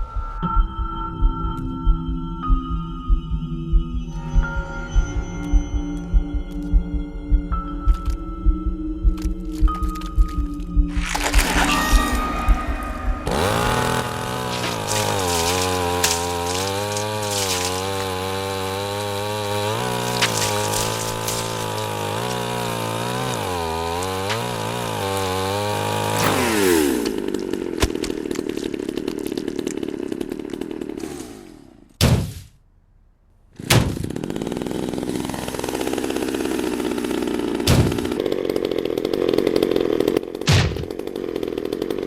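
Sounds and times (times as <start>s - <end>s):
chainsaw running and revving: 9.2s - 32.0s, 33.8s - 42.0s
sharp hits: 10.9s - 18.7s.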